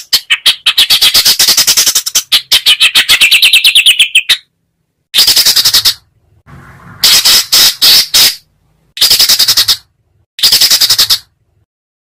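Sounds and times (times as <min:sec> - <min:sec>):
songbird rattling calls: 0:05.2 - 0:06.0, 0:07.0 - 0:08.4, 0:09.0 - 0:09.8, 0:10.4 - 0:11.3.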